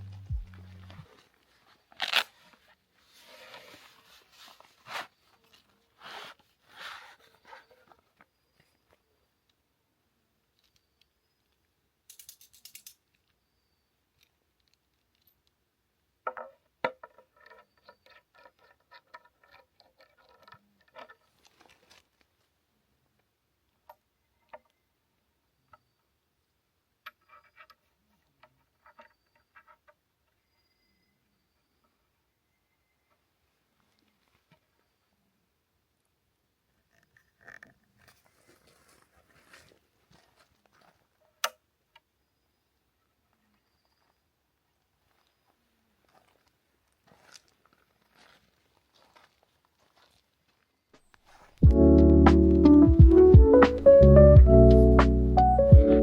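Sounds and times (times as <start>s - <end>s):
rustling and scraping handling noises: 0.0s - 9.0s, 16.4s - 22.5s, 37.0s - 41.4s.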